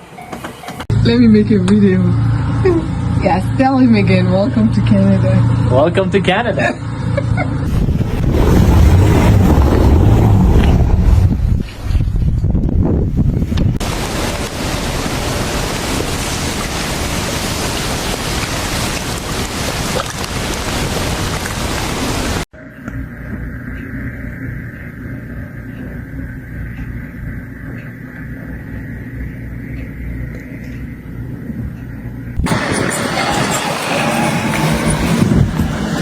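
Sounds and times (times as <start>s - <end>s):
low rumble: 7.6s - 13.8s
blizzard wind on microphone: 7.7s - 22.4s, 32.4s - 36.0s.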